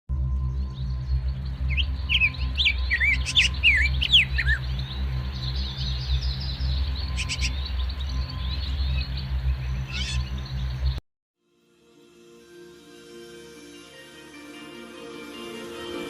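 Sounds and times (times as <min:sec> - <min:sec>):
steady low drone: 0:00.1 - 0:11.0
birds chirping: 0:00.4 - 0:11.0.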